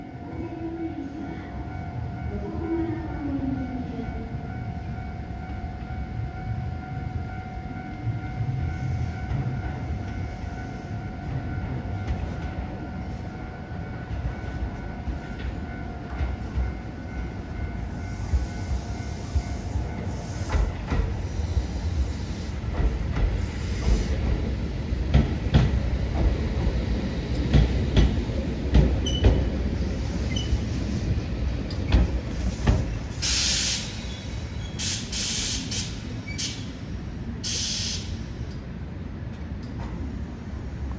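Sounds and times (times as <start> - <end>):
train rumble: 0.0 - 40.9
air hiss: 32.3 - 38.6.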